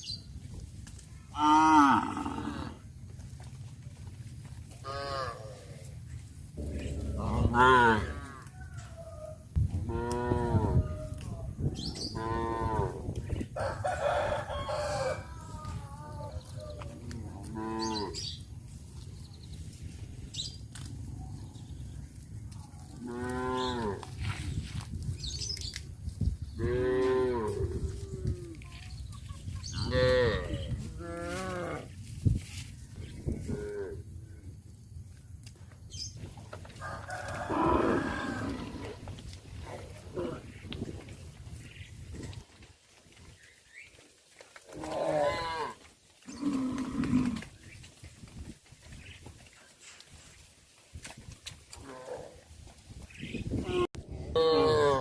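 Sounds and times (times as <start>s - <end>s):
cattle mooing: 6.6s - 8.4s, 53.7s - 55.0s.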